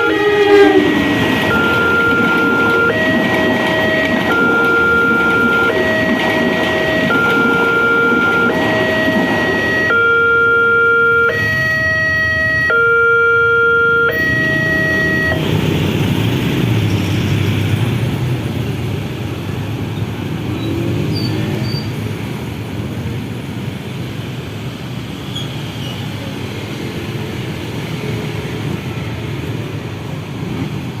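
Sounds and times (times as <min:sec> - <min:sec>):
level-crossing warning tone: 0:00.0 - 0:17.6
road traffic passing: 0:00.0 - 0:31.0.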